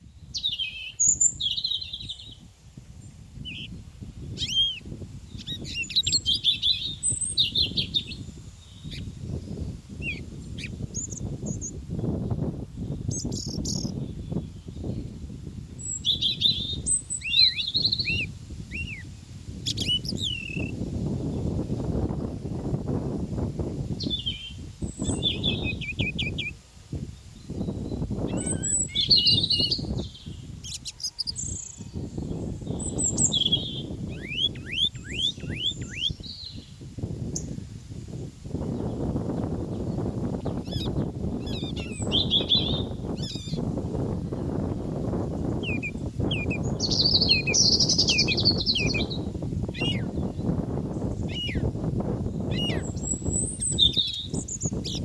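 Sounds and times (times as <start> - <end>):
songbirds chirping and singing: 0.2 - 26.6, 27.2 - 37.6, 38.6 - 55.0.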